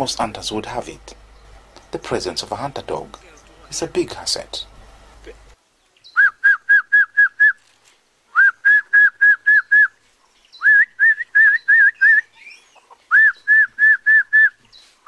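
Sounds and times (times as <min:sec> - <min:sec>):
rising whistled notes: 0:06.1 - 0:07.6.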